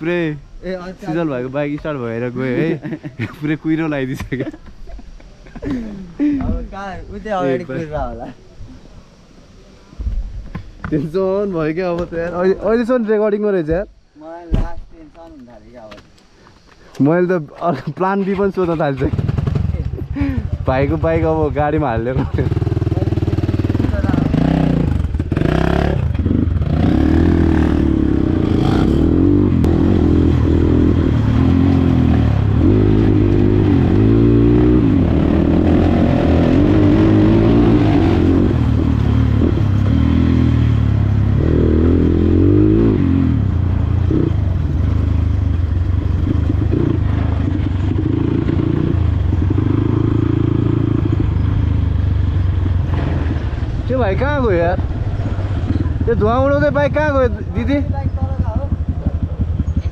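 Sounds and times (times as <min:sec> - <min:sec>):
dirt bike engine revving: 0:19.0 - 0:21.2, 0:22.0 - 0:59.9.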